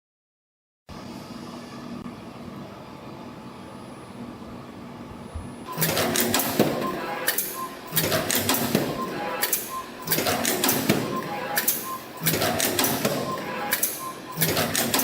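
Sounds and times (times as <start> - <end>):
machine humming: 5.5 - 15.0
rhythmic machine clatter: 5.7 - 15.0.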